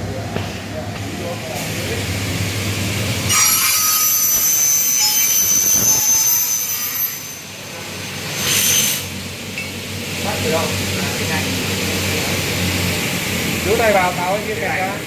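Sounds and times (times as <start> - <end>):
saw blade cutting metal whine: 3.2 - 9.2.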